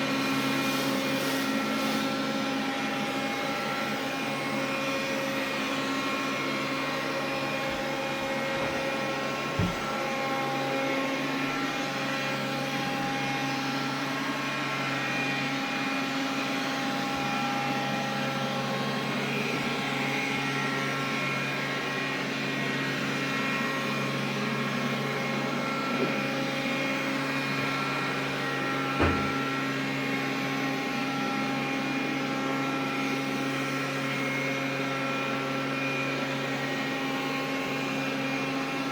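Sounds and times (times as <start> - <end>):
vacuum cleaner humming and whining: 0.0 - 38.9.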